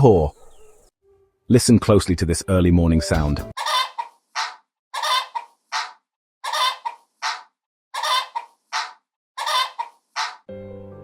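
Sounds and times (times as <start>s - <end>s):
rooster calling: 3.6s - 7.4s, 8.0s - 10.4s.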